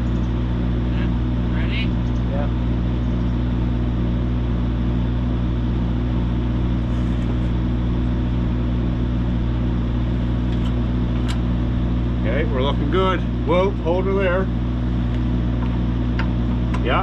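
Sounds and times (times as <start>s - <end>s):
machine engine humming: 0.0s - 17.0s.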